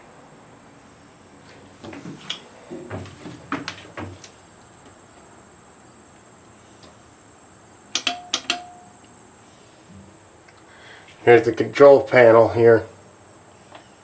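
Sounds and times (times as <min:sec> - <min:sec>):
irregular knocks and clunks: 0:01.8 - 0:04.3
sharp click: 0:07.9 - 0:09.0.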